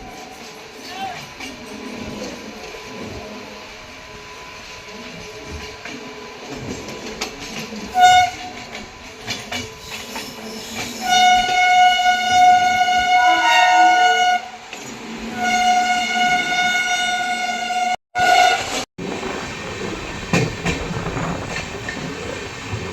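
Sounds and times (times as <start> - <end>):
moving train: 0.0 - 22.9
train horn: 7.8 - 8.9, 11.0 - 14.7, 15.3 - 18.8.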